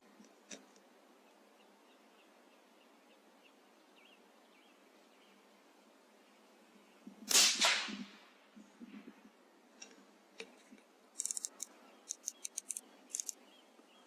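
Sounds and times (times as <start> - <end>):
rifle shot: 7.3 - 8.4.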